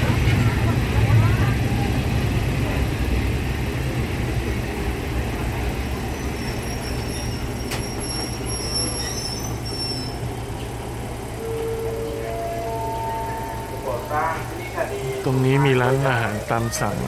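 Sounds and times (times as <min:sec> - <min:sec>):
railcar low rumble: 0:00.0 - 0:17.0
high-pitched wheel squeal: 0:06.1 - 0:10.4.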